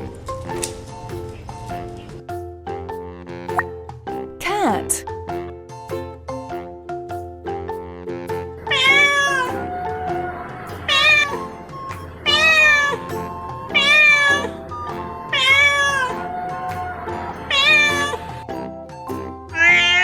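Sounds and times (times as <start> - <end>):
cat meowing: 8.7 - 11.5, 12.2 - 14.7, 15.3 - 18.4, 19.5 - 20.0.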